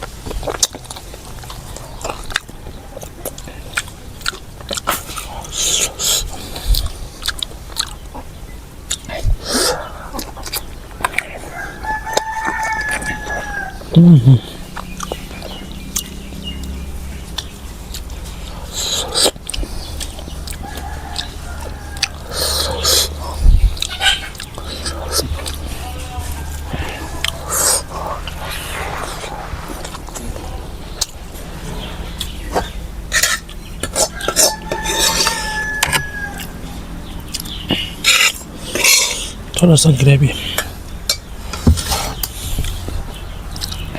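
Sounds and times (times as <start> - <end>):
chewing and biting: 0.0 - 39.6, 40.5 - 43.9
steady low hum: 0.0 - 43.9
mouth clicks: 13.9 - 21.3.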